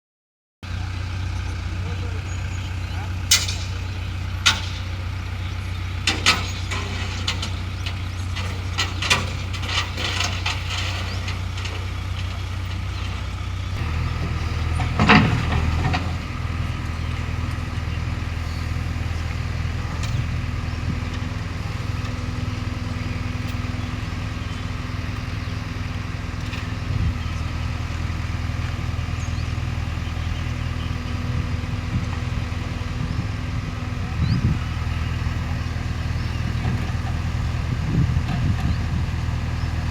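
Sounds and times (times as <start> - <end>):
diesel engine running: 0.6 - 39.9
metal clanks and knocks: 3.2 - 5.1, 6.0 - 23.9.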